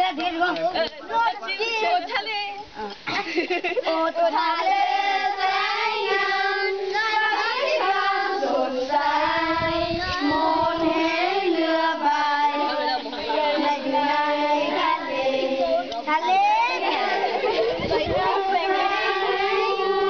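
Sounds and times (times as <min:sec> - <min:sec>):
children singing: 0:04.3 - 0:20.0.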